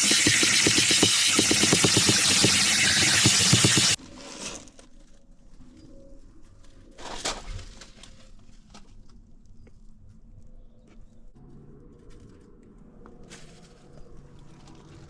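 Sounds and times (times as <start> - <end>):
pressure washer spraying: 0.0 - 4.0.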